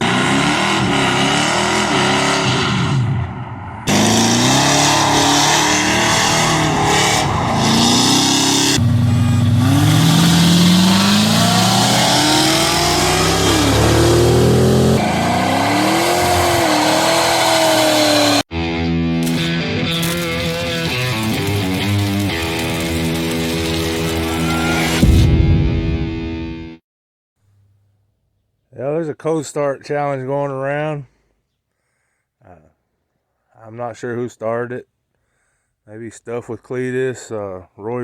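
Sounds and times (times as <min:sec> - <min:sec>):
pickup truck engines revving: 0:00.0 - 0:18.5.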